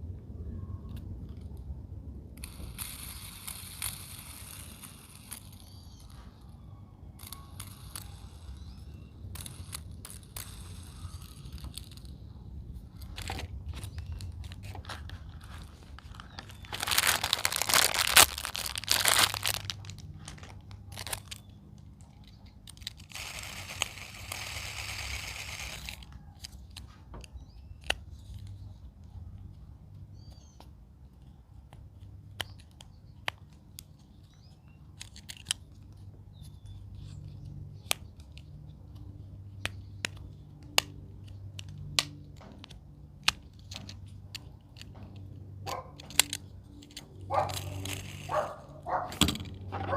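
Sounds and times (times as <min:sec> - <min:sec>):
plastic fidget toys clicking: 0:02.4 - 0:28.6, 0:31.2 - 0:48.5
plastic packaging crinkling and tearing: 0:12.9 - 0:26.8, 0:45.9 - 0:48.8.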